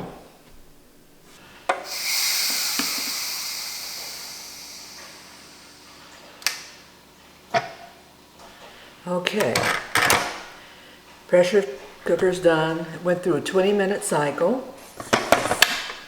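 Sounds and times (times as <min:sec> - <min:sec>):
pressure cooker valve click: 0:01.7 - 0:05.0
steam hissing: 0:01.7 - 0:06.9.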